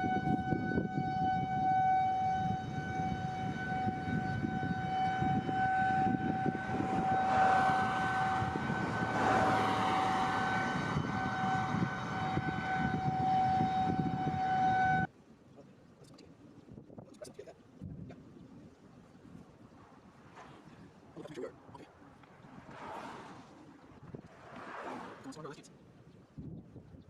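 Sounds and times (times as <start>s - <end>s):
warning siren: 0.0s - 15.1s
wind: 0.0s - 27.0s.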